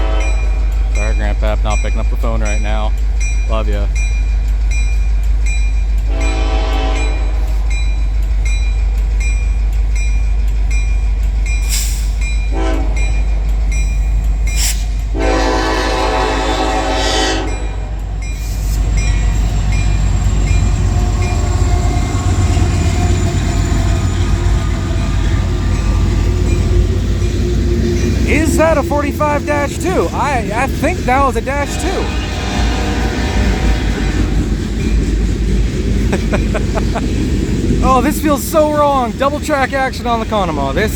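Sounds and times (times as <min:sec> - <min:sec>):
locomotive air horn blasts: 0:00.0 - 0:00.6, 0:06.1 - 0:07.6, 0:12.5 - 0:13.0, 0:15.1 - 0:18.0, 0:31.4 - 0:34.4
locomotive engines rumbling: 0:00.0 - 0:40.9.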